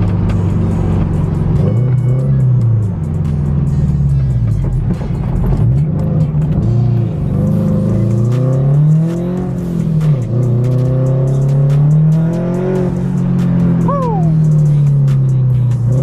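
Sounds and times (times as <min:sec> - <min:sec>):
car engine accelerating hard: 0:00.0 - 0:16.0.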